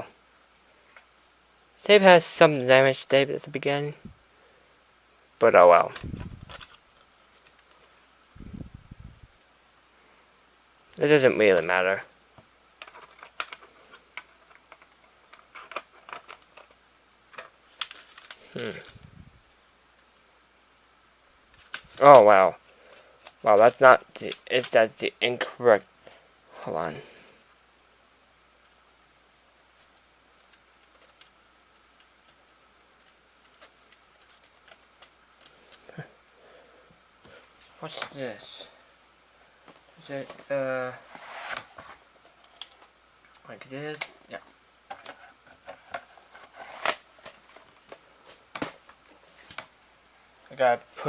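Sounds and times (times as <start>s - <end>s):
plastic parts clicking and tapping: 12.8s - 18.4s, 30.4s - 35.8s.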